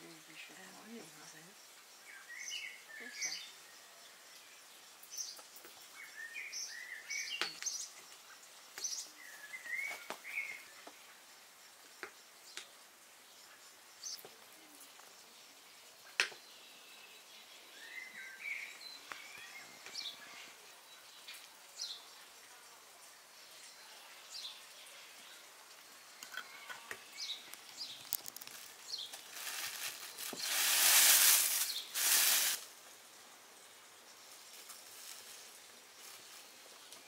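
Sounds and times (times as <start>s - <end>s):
faint bird chirps: 0.1s - 10.8s, 26.0s - 28.2s.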